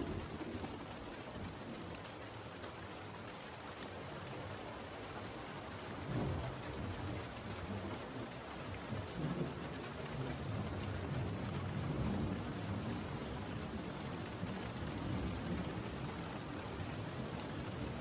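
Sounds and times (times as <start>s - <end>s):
low thunder rumbling: 0.0s - 0.8s
steady rain: 0.0s - 18.0s.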